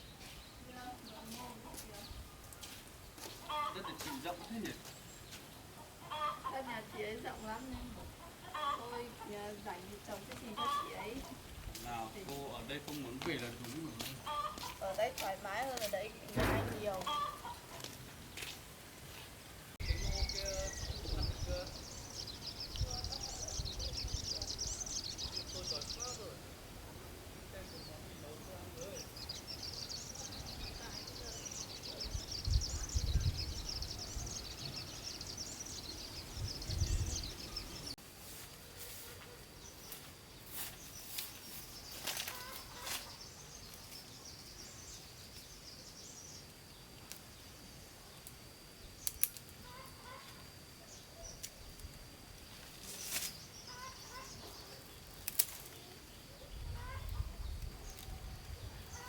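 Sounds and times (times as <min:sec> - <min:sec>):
faint bird chirps: 0:19.8 - 0:26.4.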